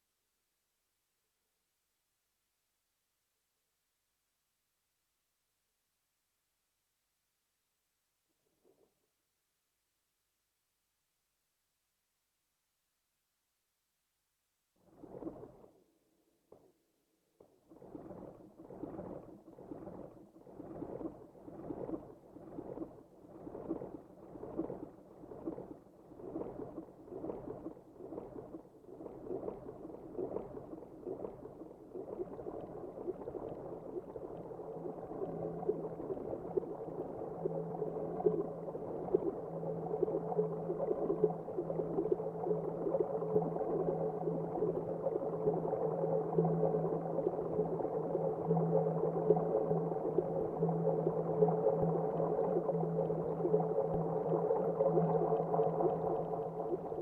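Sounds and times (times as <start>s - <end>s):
low steady drone: 29.3s - 57.0s
ambient synthesizer music: 32.2s - 57.0s.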